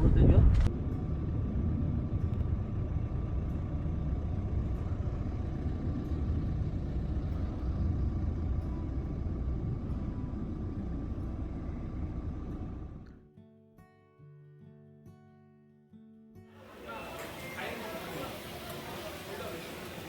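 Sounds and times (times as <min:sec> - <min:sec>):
low rumbling noise: 0:00.0 - 0:13.1
faint steady hum: 0:00.6 - 0:13.2.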